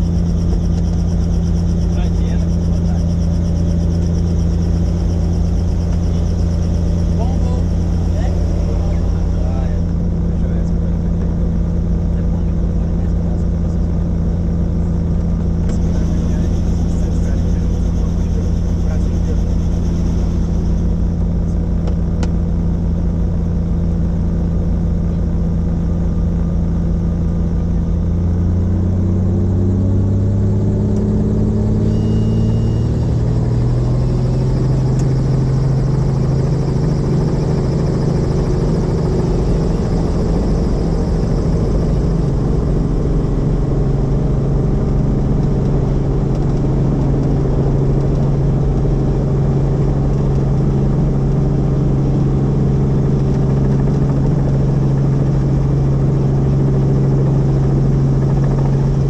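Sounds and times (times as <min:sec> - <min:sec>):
helicopter engine and rotor: 0:00.0 - 0:59.0.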